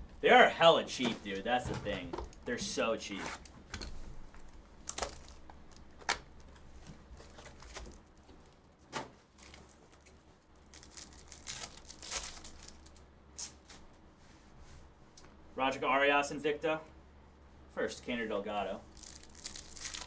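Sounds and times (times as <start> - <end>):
card wrappers tearing and crinkling: 4.2 - 8.7, 9.3 - 13.8, 18.8 - 20.0.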